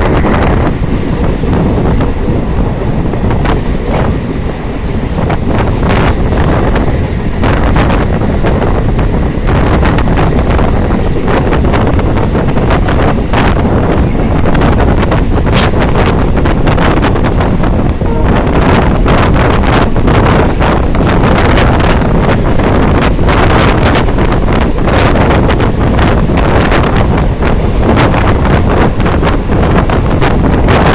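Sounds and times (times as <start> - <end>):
low rumble: 0.0 - 21.4
wind buffeting microphone: 0.0 - 30.9.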